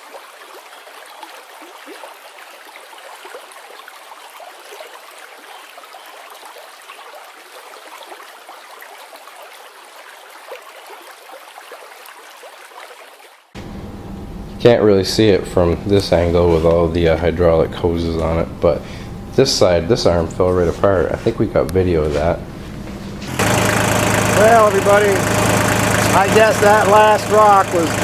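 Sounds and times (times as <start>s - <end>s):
running water babbling: 0.0s - 13.6s, 23.3s - 28.0s.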